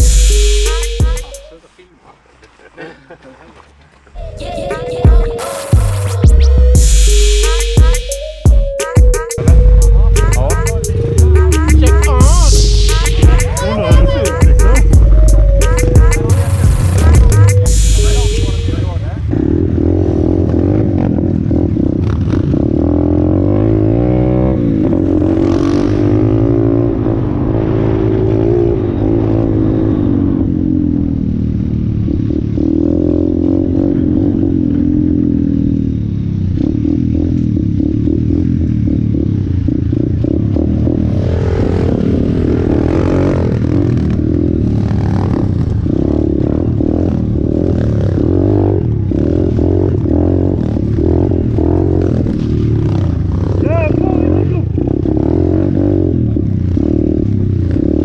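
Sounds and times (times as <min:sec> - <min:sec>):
motorbike engine revving: 0:09.4 - 0:58.0.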